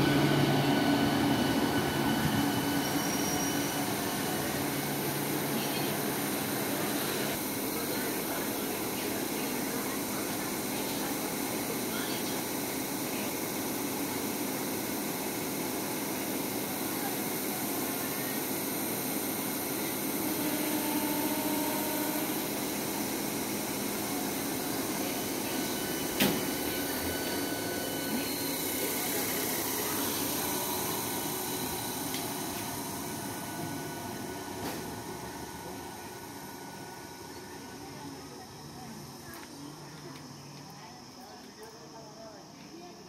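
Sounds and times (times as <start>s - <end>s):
train wheels rolling on rails: 21.5s - 40.7s.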